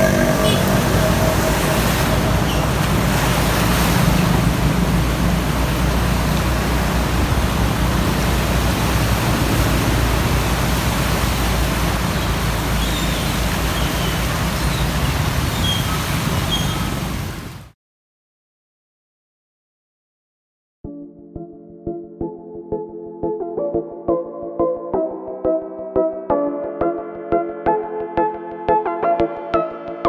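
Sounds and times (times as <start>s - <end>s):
water rushing: 0.0s - 17.8s.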